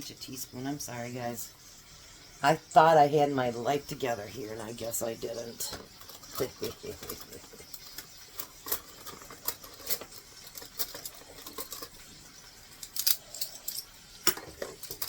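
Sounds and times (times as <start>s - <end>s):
cutlery clinking and clattering: 5.6s - 15.0s.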